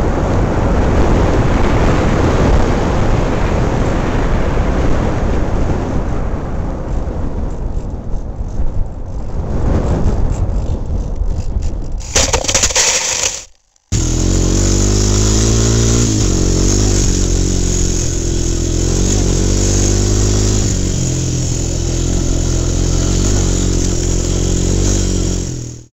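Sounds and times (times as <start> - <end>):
motor running: 12.0 - 25.9.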